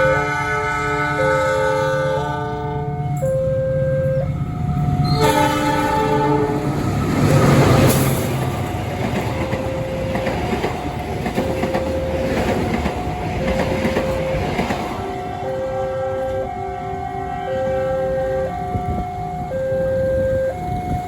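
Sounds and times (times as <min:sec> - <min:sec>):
locomotive horn: 0:00.0 - 0:08.2, 0:13.3 - 0:21.0
train rumbling past: 0:00.0 - 0:21.0.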